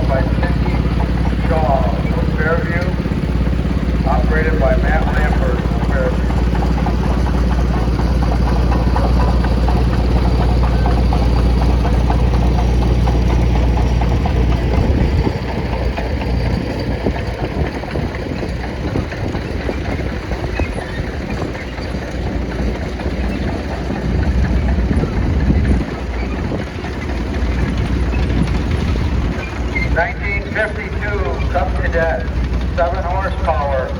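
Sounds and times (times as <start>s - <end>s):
deep tractor engine: 0.0s - 33.9s
rough-running tractor engine: 0.0s - 33.9s.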